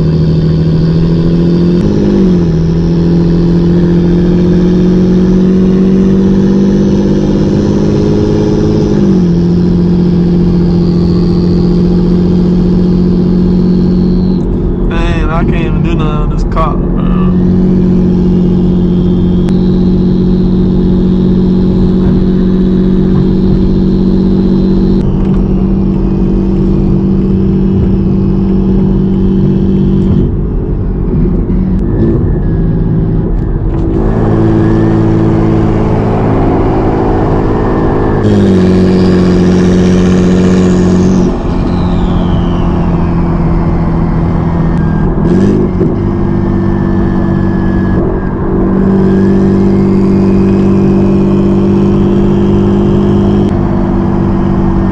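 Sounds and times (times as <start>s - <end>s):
car engine running: 0.0s - 54.9s
turbo whistle: 10.4s - 14.7s, 17.3s - 26.7s, 31.8s - 53.6s.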